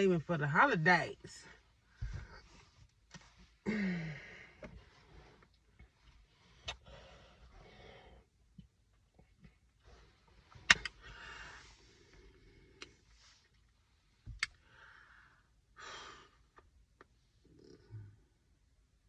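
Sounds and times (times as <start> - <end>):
person sighing: 3.6 - 4.7.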